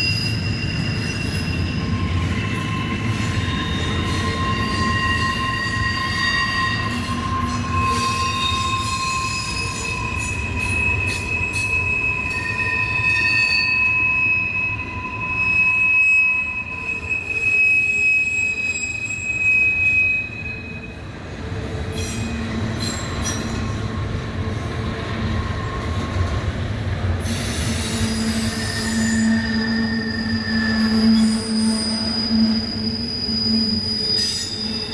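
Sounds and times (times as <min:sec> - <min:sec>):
train wheels squealing on rails: 0:00.0 - 0:34.9.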